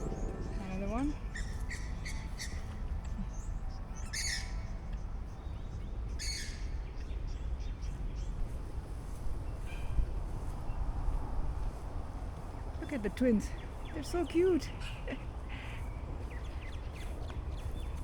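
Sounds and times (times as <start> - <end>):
harsh bird calls: 0.0 - 1.5
birds chirping: 0.0 - 1.6.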